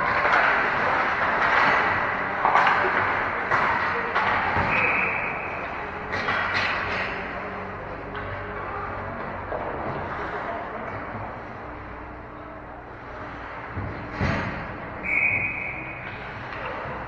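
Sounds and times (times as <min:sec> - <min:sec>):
skates scraping on ice: 0:00.0 - 0:07.6
hockey sticks and puck knocking: 0:00.0 - 0:12.1, 0:12.9 - 0:17.0
arena noise: 0:00.0 - 0:17.0.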